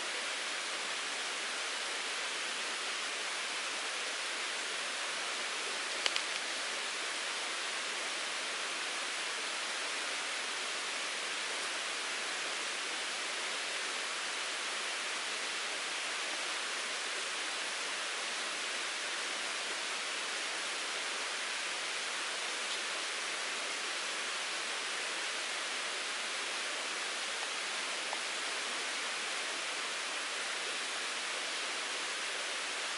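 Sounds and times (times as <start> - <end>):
stream water rushing: 0.1 - 32.9
brief click: 6.0 - 6.4.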